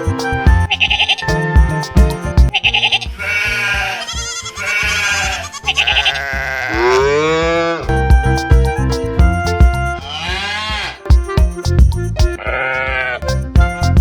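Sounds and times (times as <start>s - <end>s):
background music with steady beat: 0.0s - 14.0s
goat bleating: 3.2s - 7.7s.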